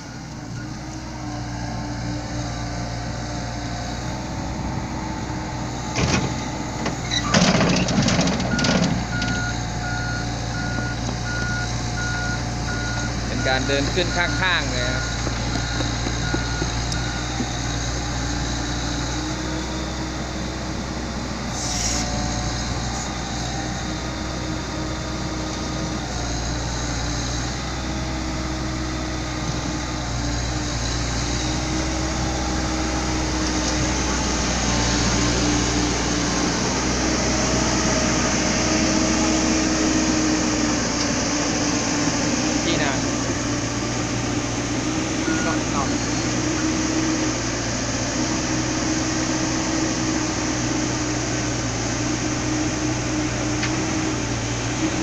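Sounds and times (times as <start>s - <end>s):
excavator diesel engine under load: 0.0s - 55.0s
backup alarm beeping: 8.5s - 17.4s, 45.2s - 45.9s.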